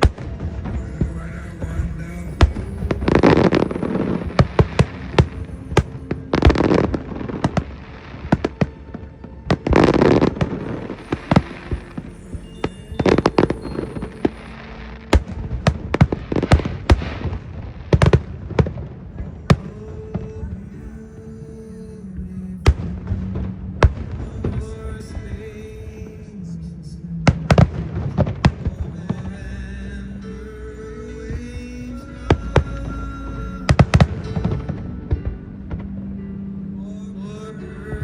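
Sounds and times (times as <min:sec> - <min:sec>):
fireworks bangs: 0:00.0 - 0:20.6.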